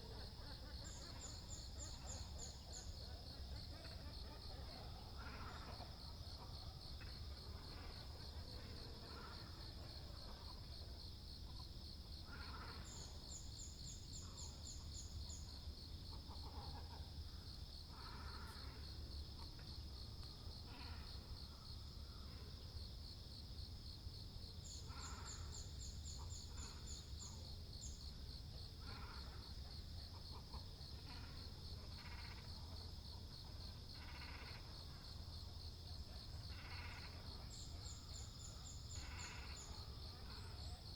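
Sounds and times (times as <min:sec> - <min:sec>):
high insect trill: 0:22.8 - 0:40.9.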